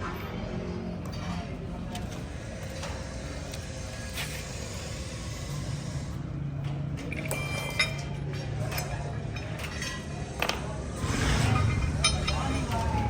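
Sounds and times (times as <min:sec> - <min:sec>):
metal tools clinking: 0:11.0 - 0:13.0.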